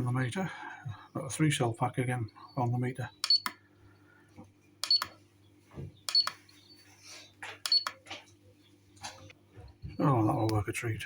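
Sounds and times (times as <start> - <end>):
steady low hum: 0.0 - 11.0
sharp clicks: 3.2 - 3.6, 6.1 - 6.4.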